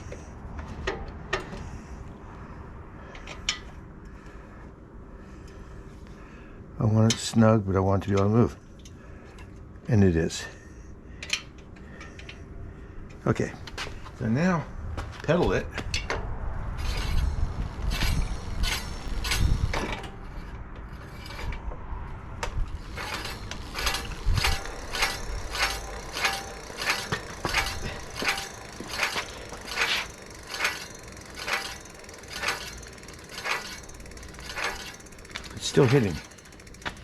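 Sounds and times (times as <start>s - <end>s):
brake rotor ticking on caliper: 16.7s - 37.0s.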